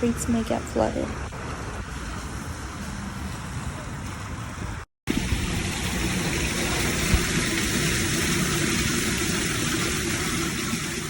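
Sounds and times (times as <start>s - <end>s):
rain hissing on street: 0.7s - 11.0s.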